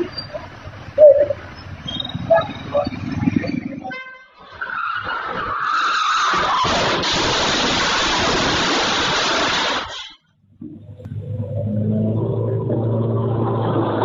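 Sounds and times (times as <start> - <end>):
tyres skidding with squeal: 0.0 - 8.4
harsh rushing noise: 5.1 - 10.2.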